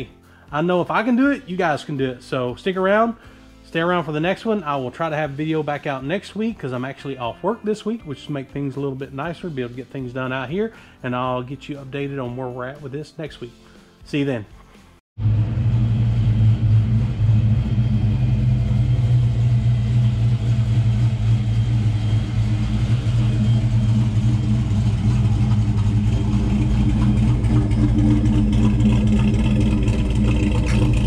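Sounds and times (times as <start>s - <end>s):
car engine idling: 15.2s - 31.0s.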